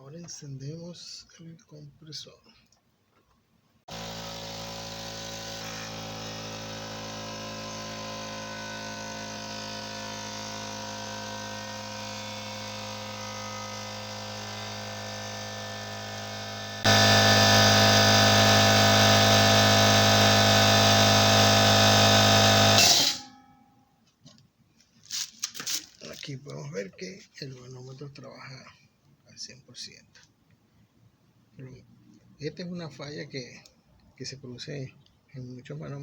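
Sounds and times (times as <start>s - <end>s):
air compressor running: 3.9s - 23.4s.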